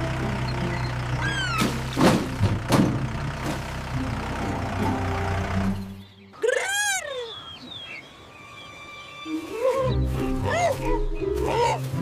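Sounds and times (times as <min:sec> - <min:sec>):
engine knocks: 0:00.0 - 0:06.0
tractor engine running: 0:00.0 - 0:06.2.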